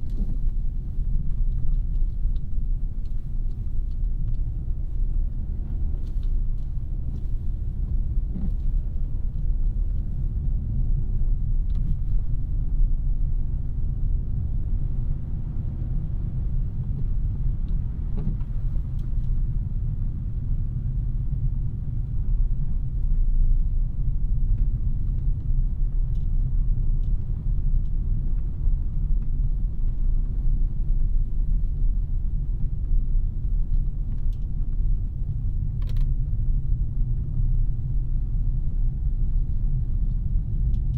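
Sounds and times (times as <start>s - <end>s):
road noise: 0.0s - 23.4s
car engine rumble: 0.0s - 40.9s.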